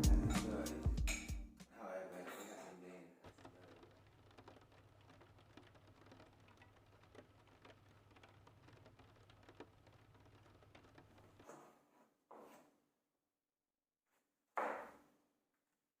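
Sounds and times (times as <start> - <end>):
faint clicking and tapping: 3.2 - 11.6.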